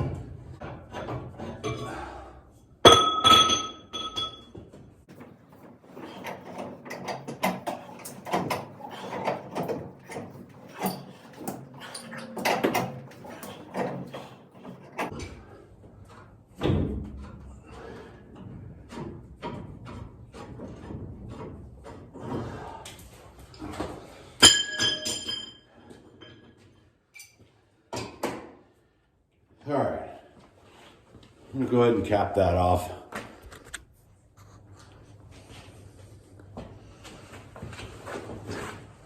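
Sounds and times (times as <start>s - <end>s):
tools knocking and scraping: 0.0s - 2.1s, 2.8s - 22.8s, 23.6s - 28.6s
metallic clang on pipe: 2.8s - 4.5s, 24.4s - 25.6s.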